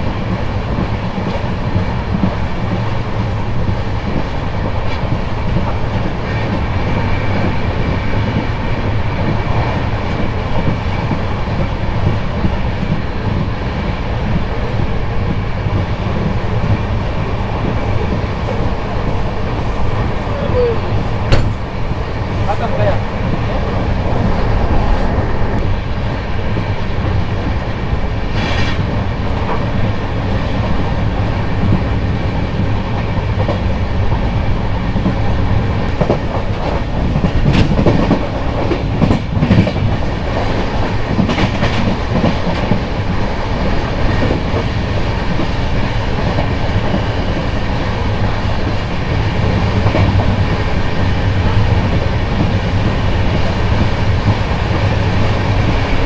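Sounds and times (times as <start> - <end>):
train wheels rumbling on rails: 0.0 - 56.0
rushing air: 12.6 - 41.1.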